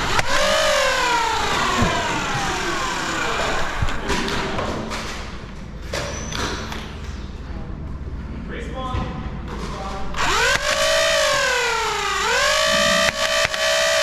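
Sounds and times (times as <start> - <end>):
flywheel motors whining down: 0.0 - 4.0, 10.2 - 14.0.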